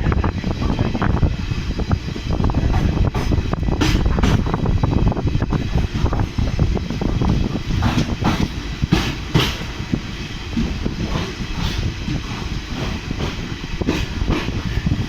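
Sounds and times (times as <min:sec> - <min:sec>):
train coaches rumbling on rails: 0:00.0 - 0:15.0
wheels clacking over rail joints: 0:02.5 - 0:04.8, 0:05.5 - 0:15.0.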